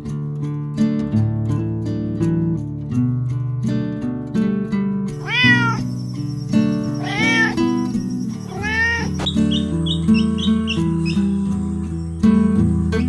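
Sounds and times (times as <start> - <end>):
acoustic guitar music: 0.0 - 13.0
cat meowing: 5.2 - 11.2.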